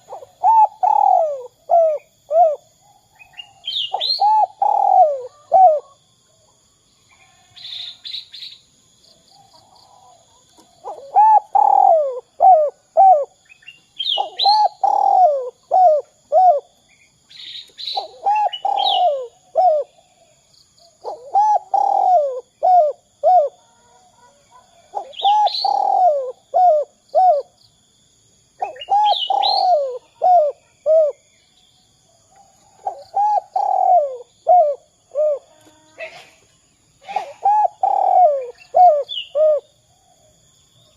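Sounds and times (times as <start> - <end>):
dove cooing: 0.0 - 2.7, 3.8 - 6.0, 9.6 - 13.4, 14.0 - 16.8, 17.9 - 20.3, 21.0 - 27.6, 28.6 - 31.2, 32.6 - 36.4, 37.0 - 39.7
small bird chirping: 7.1 - 23.6, 24.2 - 27.7, 28.6 - 40.1.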